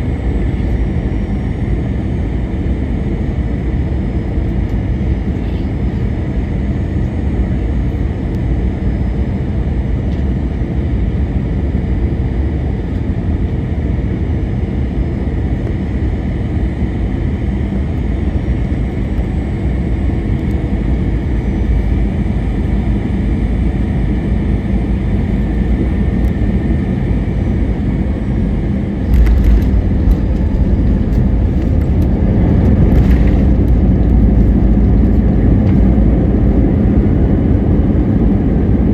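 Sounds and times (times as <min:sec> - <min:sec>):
engine and airflow rush: 0:00.0 - 0:38.9
wheels rumbling on runway: 0:27.4 - 0:38.9.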